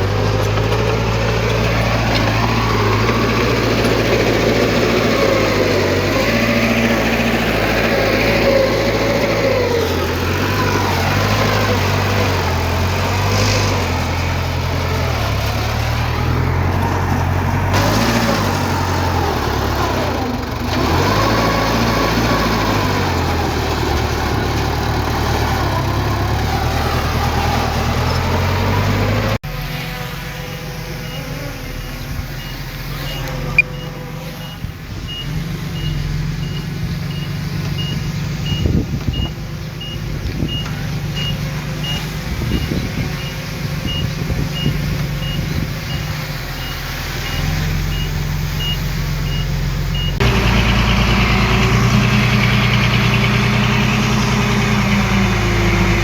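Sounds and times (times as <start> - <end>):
diesel engines of heavy machinery: 0.0 - 56.0
reversing alarm beeping: 30.4 - 50.2.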